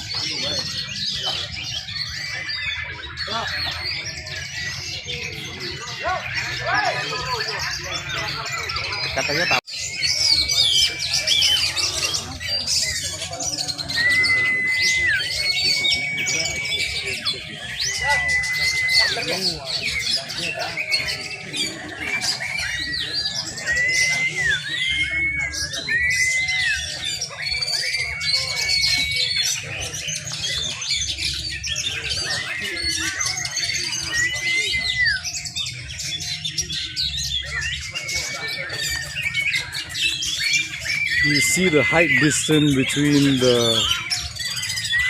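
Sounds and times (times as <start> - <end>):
birds singing: 0.0 - 45.0
long held whistled notes: 17.9 - 19.5.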